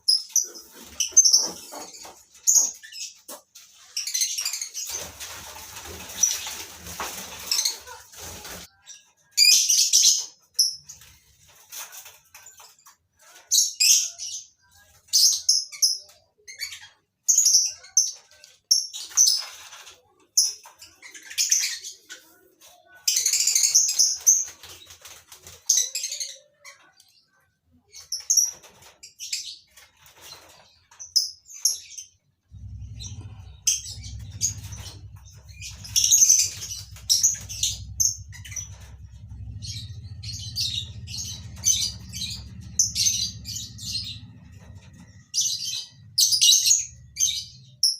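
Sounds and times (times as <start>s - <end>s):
wings flapping: 4.6s - 8.8s, 22.6s - 26.2s, 32.5s - 46.1s
lovebirds chirping: 13.2s - 47.9s
steady low hum: 32.5s - 46.0s.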